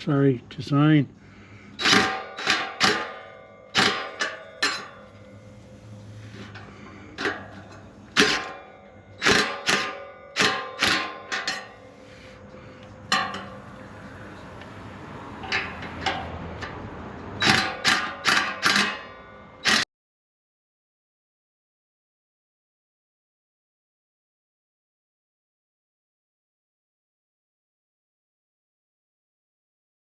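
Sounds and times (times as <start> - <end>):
metal exhaust pipe clanking: 1.3 - 19.8.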